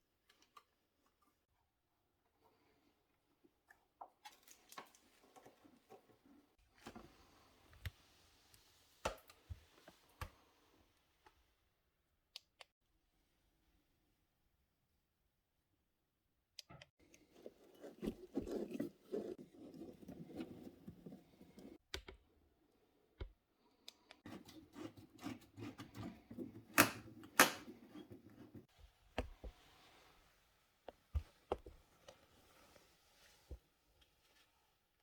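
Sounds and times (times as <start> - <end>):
rubbing and scraping of tools: 17.1 - 21.8, 24.2 - 28.7.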